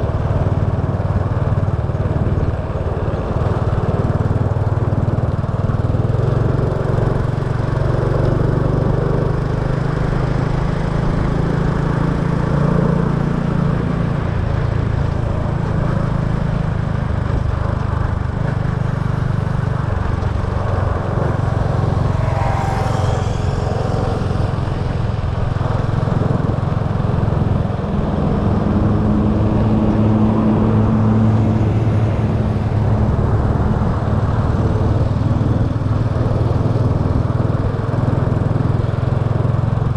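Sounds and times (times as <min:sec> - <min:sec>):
road noise: 0:00.0 - 0:39.9
small motorbike engine: 0:00.1 - 0:29.0.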